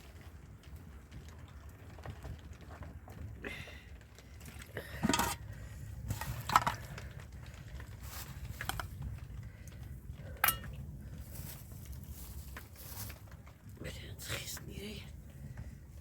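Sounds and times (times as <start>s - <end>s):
low steady rumble: 0.0s - 16.0s
kitchenware clinking and knocking: 5.0s - 5.4s.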